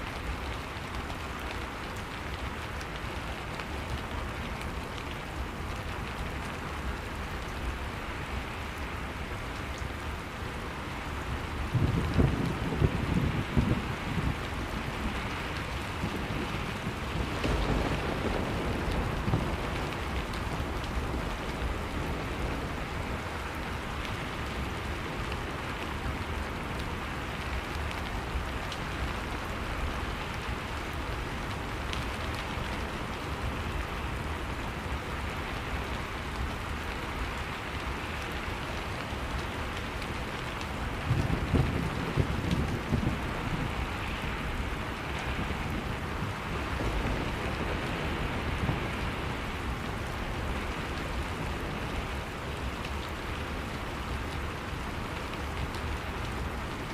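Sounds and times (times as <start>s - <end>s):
steady rain: 0.0s - 56.9s
rolling thunder: 15.8s - 23.0s.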